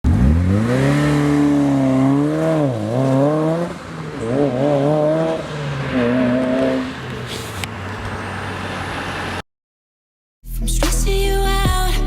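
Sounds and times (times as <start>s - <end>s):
car engine revving hard: 0.1s - 9.4s.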